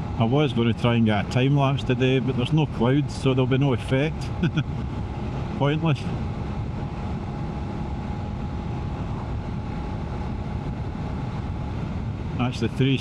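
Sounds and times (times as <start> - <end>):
road noise: 0.0 - 13.0
wind noise: 0.9 - 13.0.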